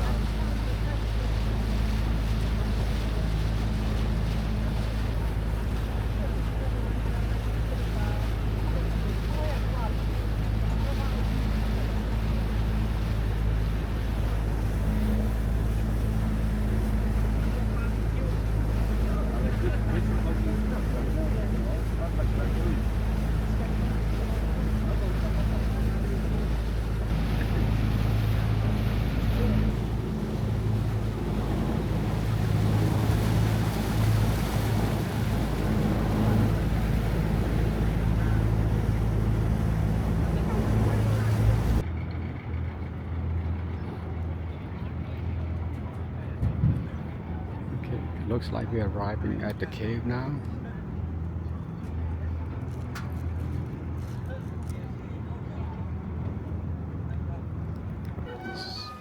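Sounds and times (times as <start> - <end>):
wind and water rushing: 0.0 - 41.9
boat engine droning: 0.0 - 59.0.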